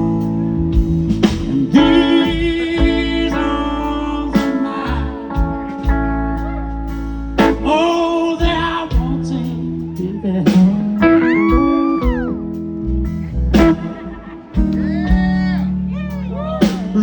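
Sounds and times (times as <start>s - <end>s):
electric guitar bent notes: 0.0s - 9.3s, 10.5s - 17.0s
bass guitar: 0.0s - 17.0s
drum hits: 13.6s - 15.6s.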